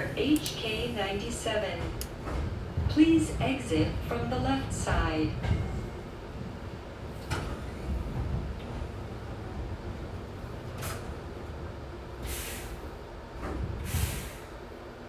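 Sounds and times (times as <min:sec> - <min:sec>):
train low rumble: 0:00.0 - 0:15.0
compressed air brake hisses: 0:12.2 - 0:12.9, 0:13.8 - 0:14.6.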